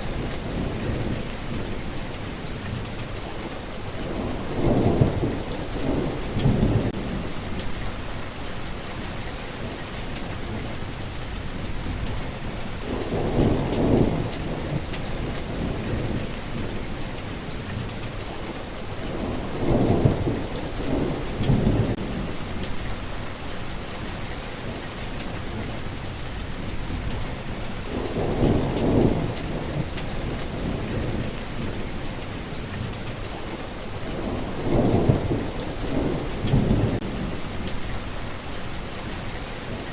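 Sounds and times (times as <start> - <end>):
heavy rain falling: 0.0 - 39.9
rolling thunder: 3.9 - 17.3, 19.0 - 24.3, 26.5 - 33.3, 34.0 - 39.8.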